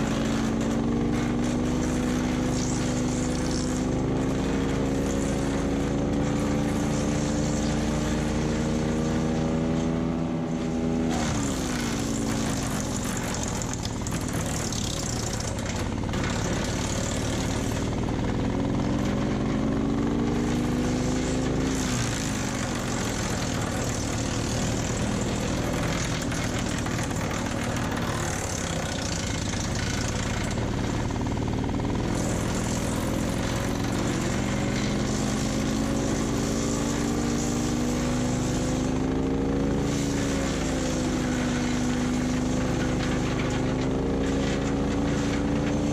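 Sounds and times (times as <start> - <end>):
wood chipper engine running: 0.0 - 45.9
wood being chipped: 11.0 - 19.7, 20.3 - 45.9.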